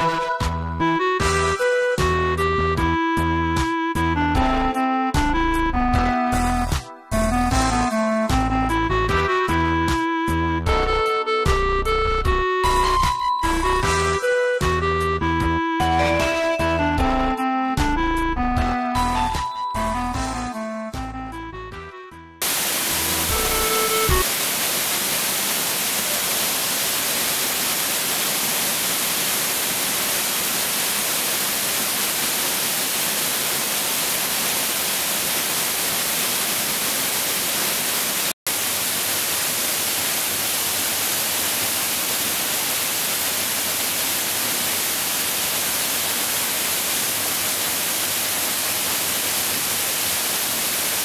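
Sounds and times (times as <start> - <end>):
music: 0.0 - 24.2
waterfall rushing: 22.4 - 51.0.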